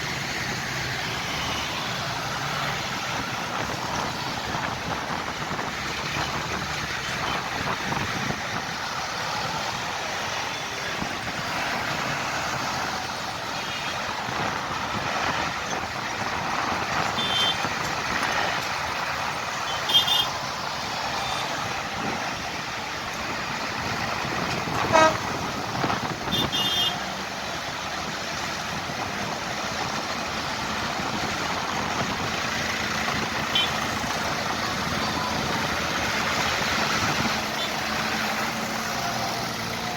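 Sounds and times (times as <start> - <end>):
tractor engines running: 0.0 - 39.9
short horn toots: 24.8 - 25.3.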